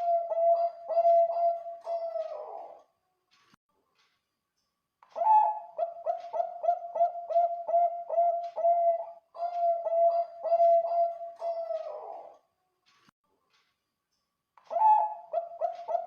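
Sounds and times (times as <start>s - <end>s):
dove cooing: 0.0s - 2.8s, 5.2s - 12.4s, 14.7s - 16.0s.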